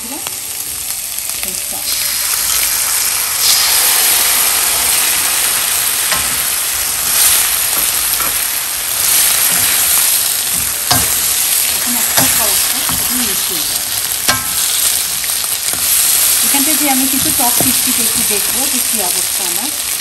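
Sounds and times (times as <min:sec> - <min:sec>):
sauce sizzling in hot wok: 0:00.0 - 0:20.0
spatula knocking against wok: 0:09.4 - 0:13.5.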